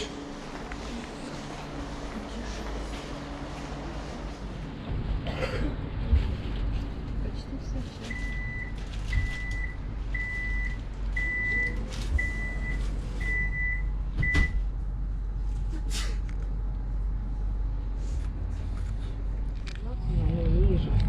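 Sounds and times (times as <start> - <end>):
train low hum: 0.0 - 21.0
sliding doors thump shut: 14.2 - 14.6.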